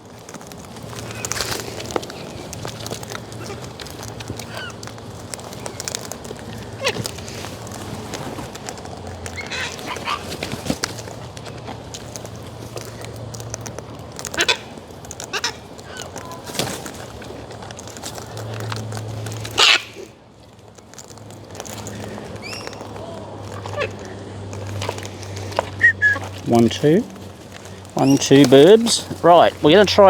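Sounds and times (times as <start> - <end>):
cockatoos squawking: 3.2 - 7.4, 9.2 - 10.6, 14.1 - 16.8, 19.3 - 20.1, 21.8 - 30.0.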